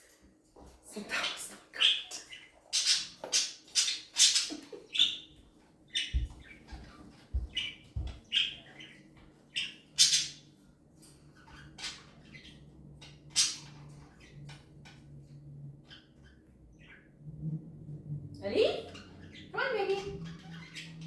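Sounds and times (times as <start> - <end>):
parrot squawking: 1.8 - 5.3, 9.6 - 10.5, 13.3 - 14.3.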